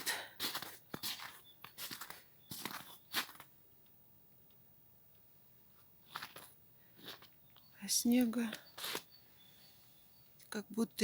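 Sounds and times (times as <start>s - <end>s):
faint crunching and rustling: 0.0s - 3.6s, 5.6s - 10.6s
faint bird chirps: 0.9s - 3.2s, 7.2s - 11.0s.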